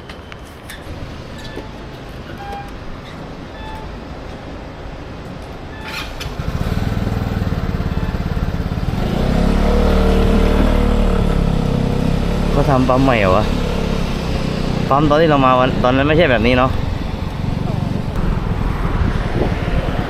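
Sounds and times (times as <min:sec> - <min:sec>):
scooter engine running: 0:06.1 - 0:18.6.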